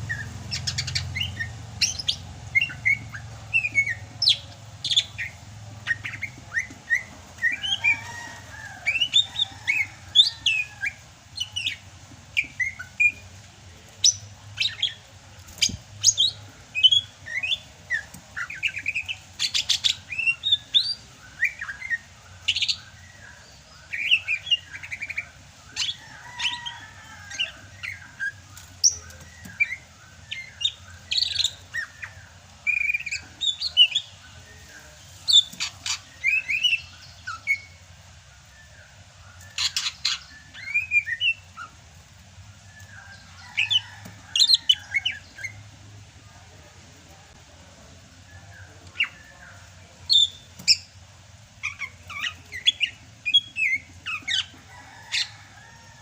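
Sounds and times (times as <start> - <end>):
bird singing chirps and trills: 0.0 - 13.3, 38.5 - 41.8, 48.2 - 50.9, 51.6 - 55.6.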